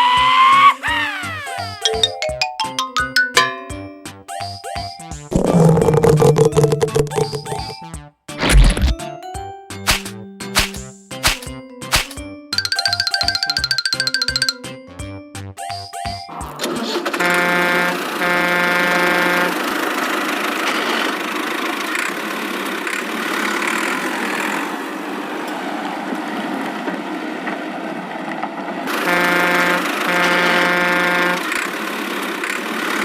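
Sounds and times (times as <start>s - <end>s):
vehicle horn honking: 17.2s - 19.6s, 29.0s - 31.5s.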